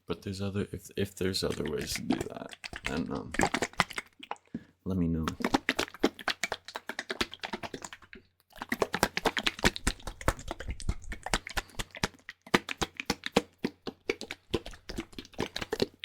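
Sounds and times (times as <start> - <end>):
rapid irregular clicking and crackling: 1.4 - 4.5.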